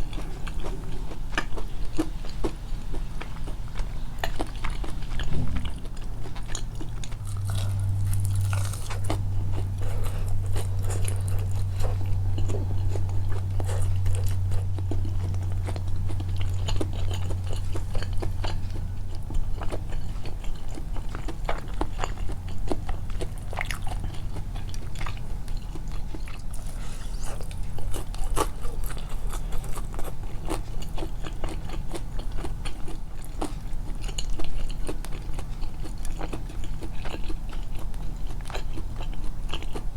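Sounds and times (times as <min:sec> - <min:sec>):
low hum: 0:00.0 - 0:19.6
biting and chewing fried chicken: 0:00.0 - 0:39.9.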